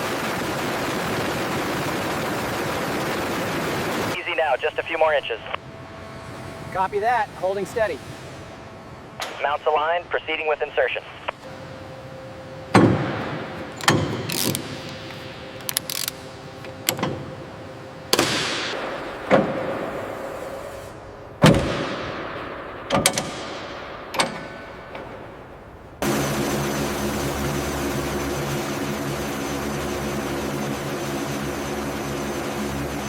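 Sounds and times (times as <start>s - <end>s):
mechanical drone with hum: 0.0s - 10.1s, 10.8s - 33.0s
heavy metal parts clanking: 21.4s - 25.7s.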